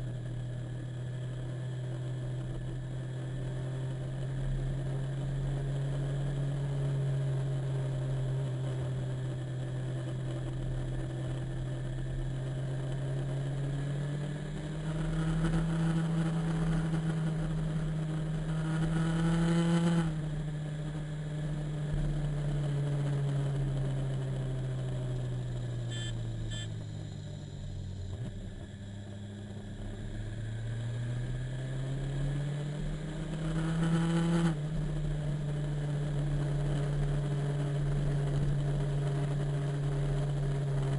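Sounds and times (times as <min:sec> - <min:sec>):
motorcycle engine shifting gears: 0:03.8 - 0:40.9
short beeps: 0:25.9 - 0:26.8.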